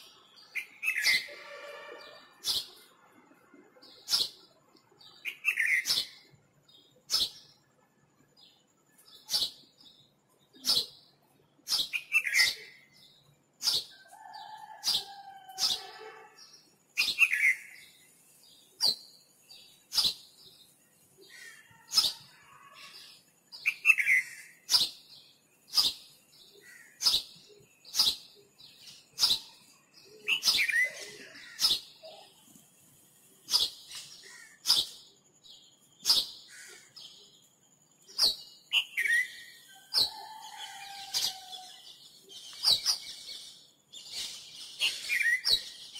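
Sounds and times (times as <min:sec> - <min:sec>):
birds descending whistled calls: 0:29.1 - 0:32.3, 0:44.0 - 0:45.9.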